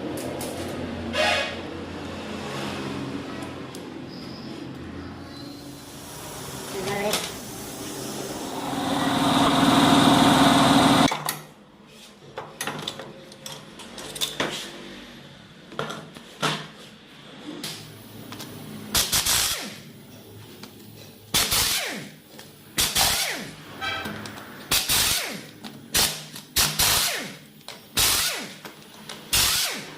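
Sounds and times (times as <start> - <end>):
power tool whirring: 7.7 - 11.1, 29.3 - 29.9
metal parts and tools clinking: 12.6 - 14.5.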